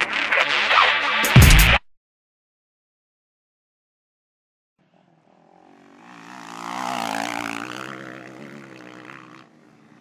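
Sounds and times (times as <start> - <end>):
motocross bike engine passing: 4.8 - 10.0.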